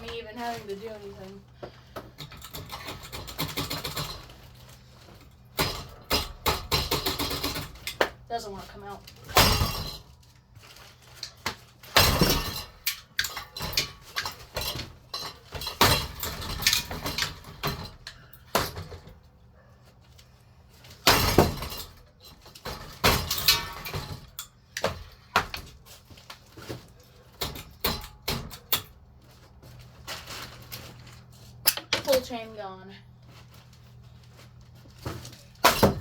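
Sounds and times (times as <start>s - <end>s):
ceiling fan being smashed: 1.9s - 4.7s, 5.4s - 8.4s, 9.1s - 19.2s, 20.7s - 29.0s, 35.0s - 36.0s
loose parts rattling: 2.0s - 19.2s, 20.7s - 29.0s.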